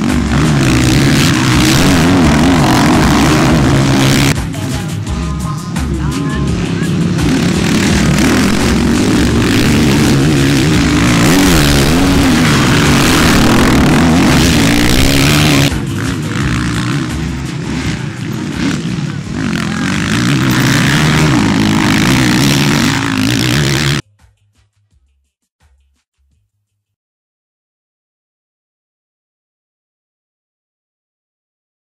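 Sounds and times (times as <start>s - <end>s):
motocross engines revving: 0.0s - 24.0s.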